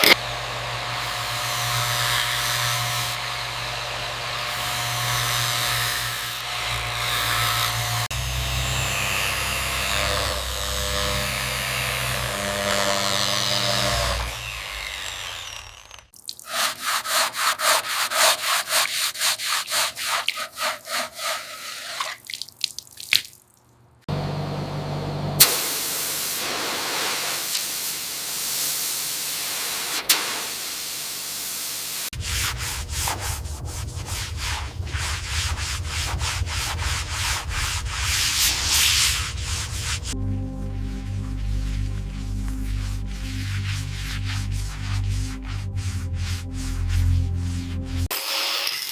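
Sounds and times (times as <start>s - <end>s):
abrasive sanding strokes: 1.0s - 22.2s, 32.1s - 48.9s
low hum: 24.1s - 25.6s, 32.2s - 48.1s.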